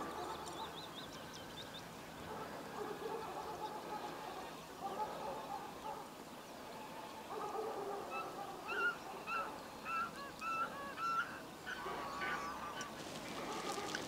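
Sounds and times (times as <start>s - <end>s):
faint background hiss: 0.0s - 14.0s
bird calling: 8.1s - 14.0s.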